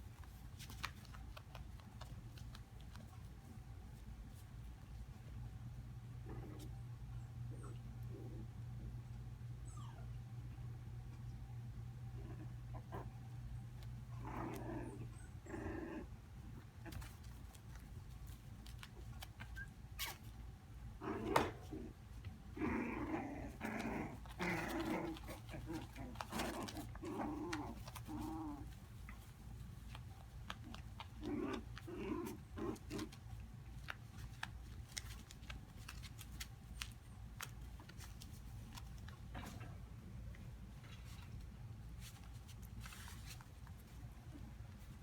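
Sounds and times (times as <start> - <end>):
puppies growling: 6.2 - 6.8, 12.1 - 17.4, 21.0 - 29.3, 30.5 - 33.4.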